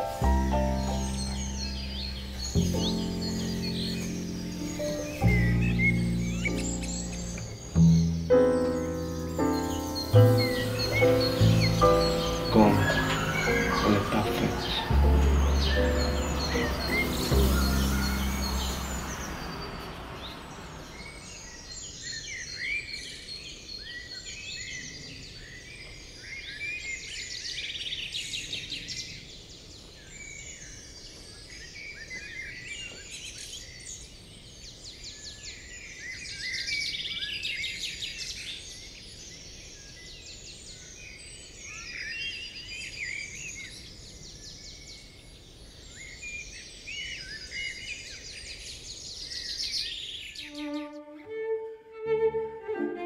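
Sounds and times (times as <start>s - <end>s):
small birds chirping and twittering: 0.0s - 51.4s
low outdoor background noise: 0.0s - 53.0s.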